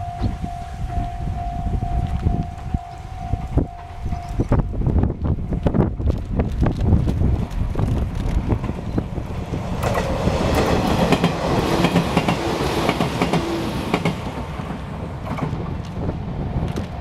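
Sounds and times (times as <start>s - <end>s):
train wheels rumbling on rails: 0.0s - 17.0s
wheels clacking over rail joints: 6.0s - 17.0s.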